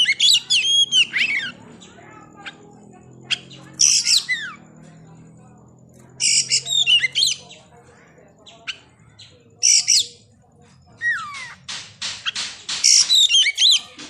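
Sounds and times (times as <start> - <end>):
bird whistled song phrases: 0.0 - 1.6, 12.9 - 13.9
faint steady background noise: 0.0 - 14.0.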